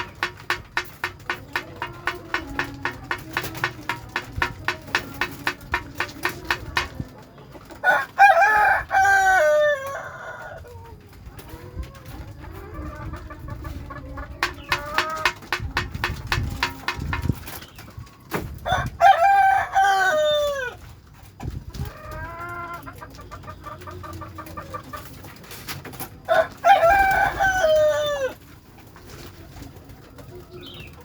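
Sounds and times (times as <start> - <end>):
rooster crowing: 7.8 - 10.6, 18.7 - 20.7, 26.3 - 28.3.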